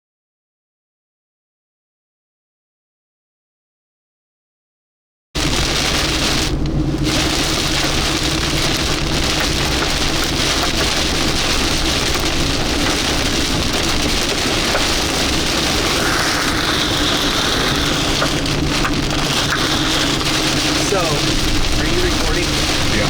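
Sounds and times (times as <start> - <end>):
heavy rain on vehicle: 5.4 - 23.0
vehicle hum: 5.4 - 23.0.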